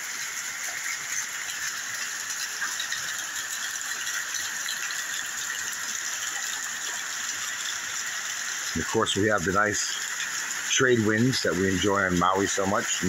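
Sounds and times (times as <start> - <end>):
steady rain: 0.0 - 13.0.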